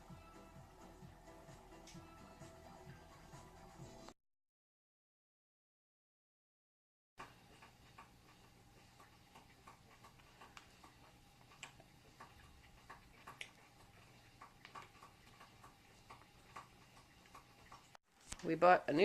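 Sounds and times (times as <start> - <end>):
small clicks and ticks: 7.2 - 18.5.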